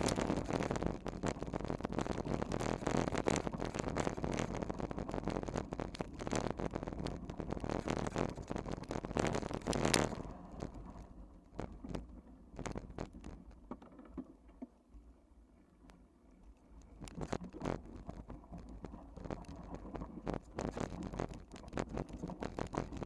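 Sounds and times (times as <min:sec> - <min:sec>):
bike rattling over rough ground: 0:00.0 - 0:10.6.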